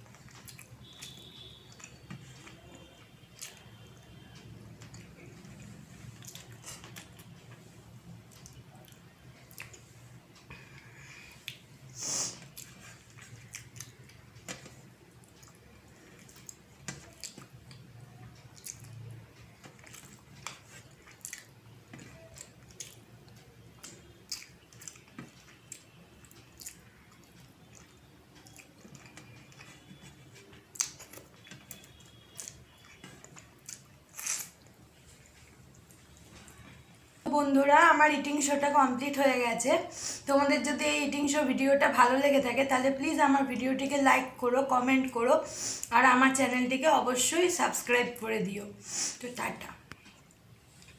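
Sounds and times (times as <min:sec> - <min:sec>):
person chewing food: 0:00.0 - 0:36.8.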